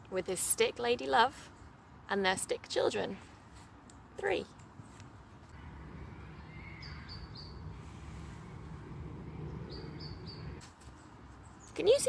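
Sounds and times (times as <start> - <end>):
low steady rumble: 5.5 - 10.6
bird chirping: 5.6 - 10.6.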